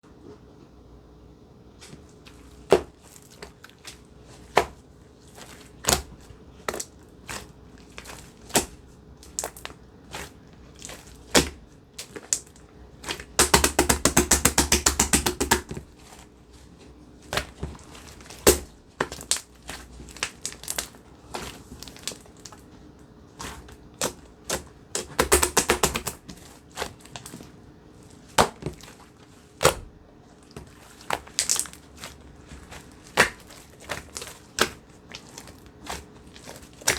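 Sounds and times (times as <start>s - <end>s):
slime squishing and popping: 17.3s - 22.6s, 23.4s - 27.4s, 30.6s - 36.9s.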